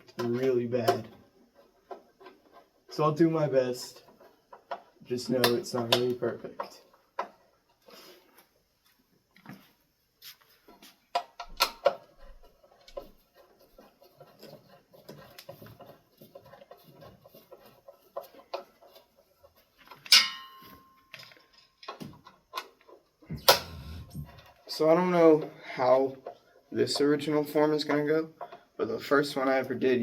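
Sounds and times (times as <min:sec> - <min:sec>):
clicks and knocks of metal hardware: 0:19.8 - 0:24.7
sharp metallic clank: 0:20.1 - 0:20.9, 0:23.3 - 0:24.2.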